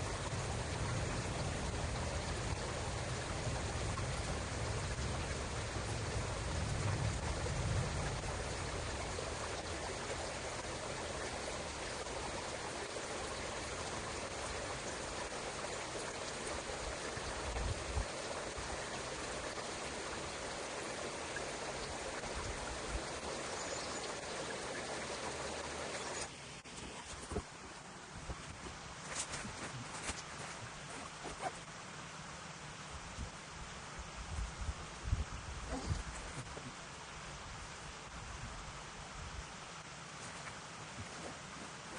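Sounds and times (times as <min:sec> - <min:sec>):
stream water flowing: 0:00.0 - 0:41.9.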